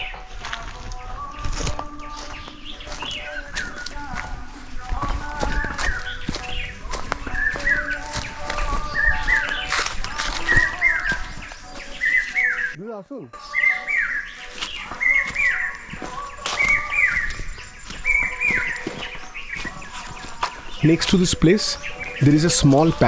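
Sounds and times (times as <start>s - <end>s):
bird calling: 5.2s - 12.8s, 13.4s - 23.0s.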